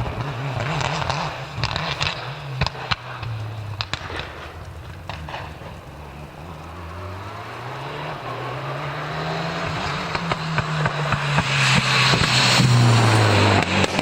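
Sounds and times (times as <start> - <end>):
exhaust pops and cracks: 0.0 - 14.0
rally car engine approaching: 0.0 - 14.0.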